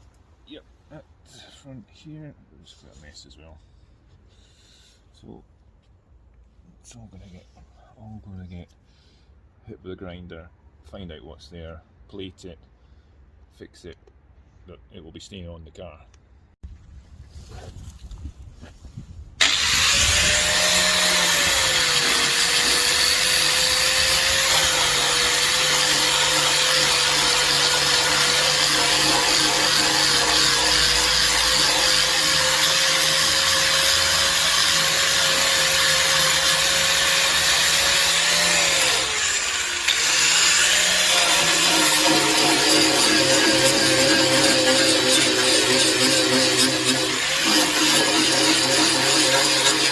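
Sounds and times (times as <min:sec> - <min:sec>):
angle grinder cutting metal: 0:19.4 - 0:49.9.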